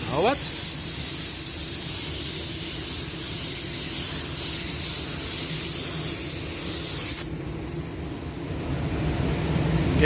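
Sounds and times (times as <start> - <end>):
paint spray gun hissing: 0.2 - 7.3.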